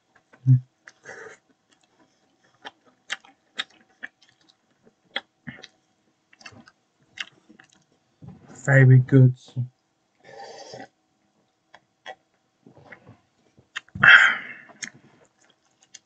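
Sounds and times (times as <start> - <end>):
person chewing pizza: 0.1 - 8.0, 11.5 - 16.0.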